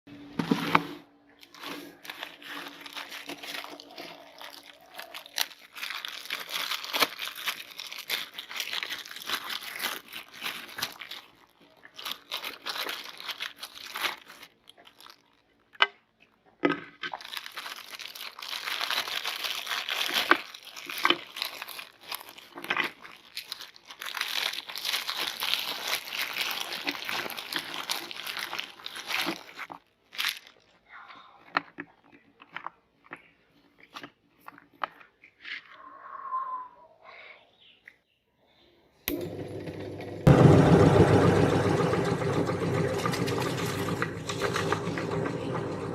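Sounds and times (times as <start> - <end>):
cookies crunching in meat grinder: 1.4 - 30.8, 39.1 - 45.9.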